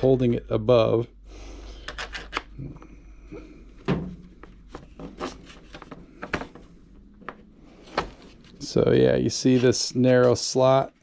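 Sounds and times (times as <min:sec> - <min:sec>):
plastic parts clicking together: 0:01.8 - 0:02.5.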